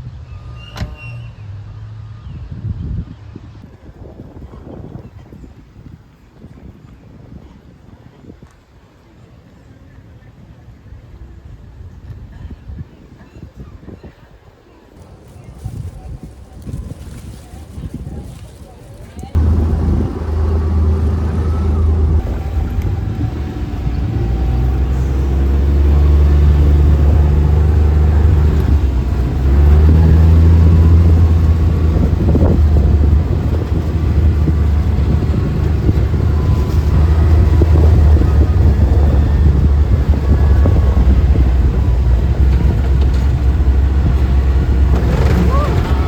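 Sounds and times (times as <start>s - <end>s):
vehicle engine low rumble: 15.0s - 46.0s.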